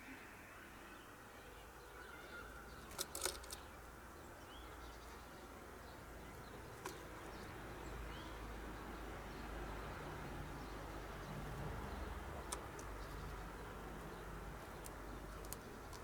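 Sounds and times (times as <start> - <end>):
faint outdoor background noise: 0.0 - 16.0
bird pecking at seed: 2.8 - 3.6, 12.3 - 16.0.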